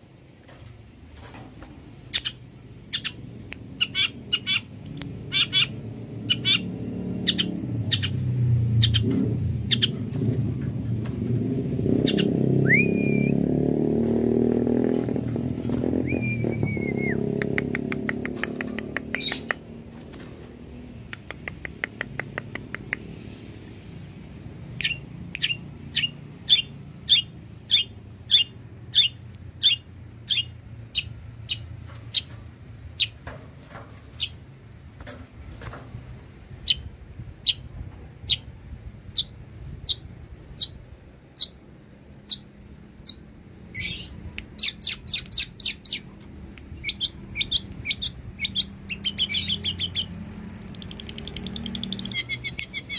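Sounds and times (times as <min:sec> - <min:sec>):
bird singing: 0:02.1 - 0:03.2, 0:03.8 - 0:10.0, 0:12.0 - 0:13.5, 0:15.9 - 0:19.6, 0:24.8 - 0:32.3, 0:42.2 - 0:46.2, 0:46.8 - 0:52.9.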